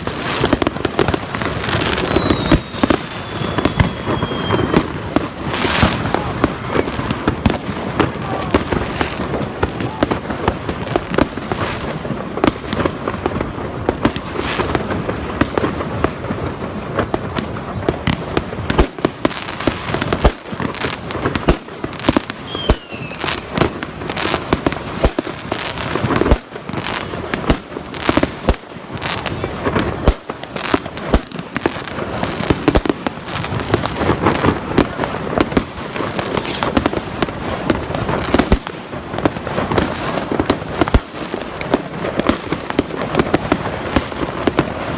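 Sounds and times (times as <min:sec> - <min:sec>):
fireworks bangs: 0:00.0 - 0:44.9
fireworks crackling: 0:00.0 - 0:44.9.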